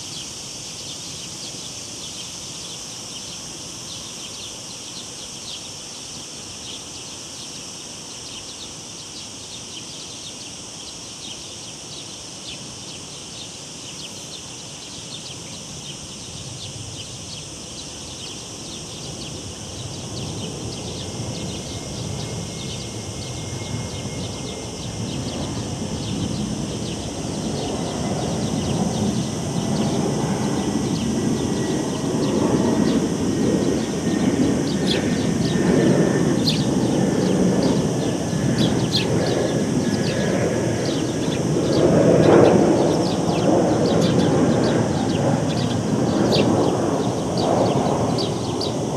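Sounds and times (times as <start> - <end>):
cicadas buzzing: 0.0 - 48.9
airplane rumble: 16.3 - 48.9.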